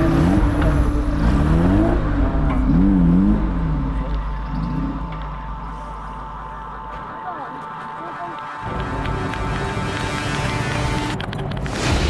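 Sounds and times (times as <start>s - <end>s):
engine revving: 0.0s - 7.6s.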